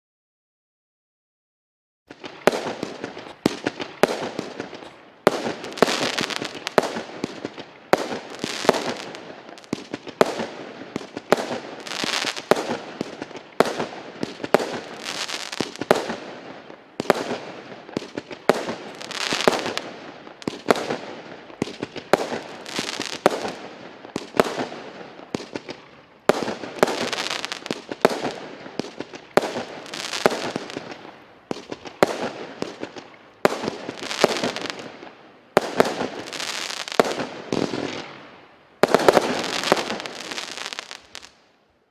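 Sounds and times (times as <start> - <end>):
firework shots banging: 2.1 - 16.3
crackling firework stars: 2.1 - 41.9.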